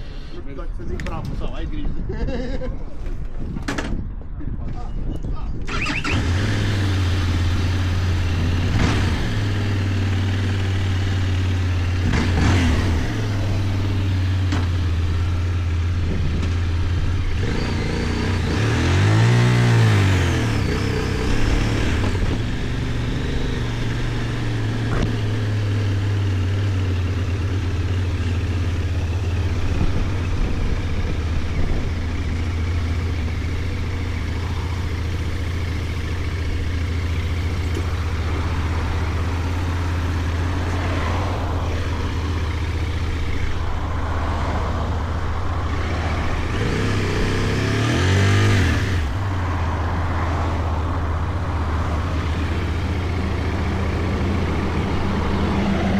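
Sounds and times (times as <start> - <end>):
motorcycle engine running: 5.6 - 55.9.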